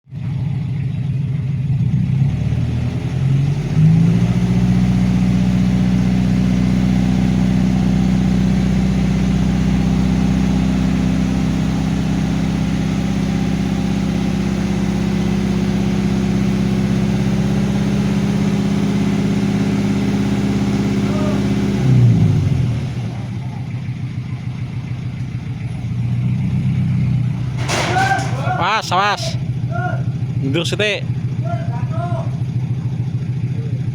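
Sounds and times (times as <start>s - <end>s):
dump truck engine running: 0.0s - 33.9s.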